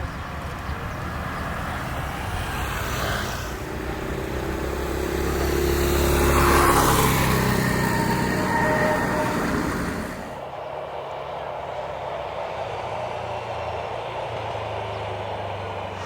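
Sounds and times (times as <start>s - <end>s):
passing vehicle engine: 0.0s - 10.5s.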